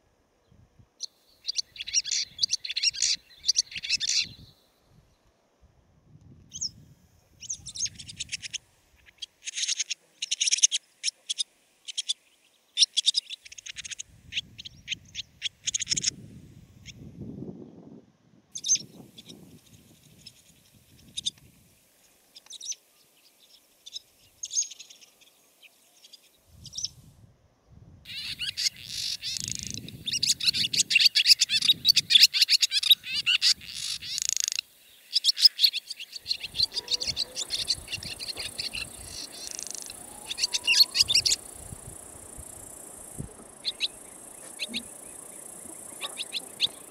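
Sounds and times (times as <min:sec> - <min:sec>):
swallow twittering: 0:01.4 - 0:04.5, 0:12.8 - 0:16.2, 0:28.1 - 0:46.9
high hiss: 0:36.3 - 0:46.9.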